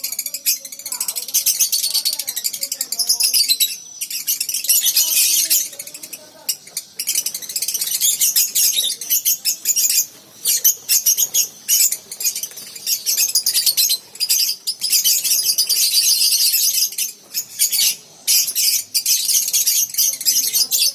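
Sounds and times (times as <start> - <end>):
lovebirds chattering: 0.0 - 20.9.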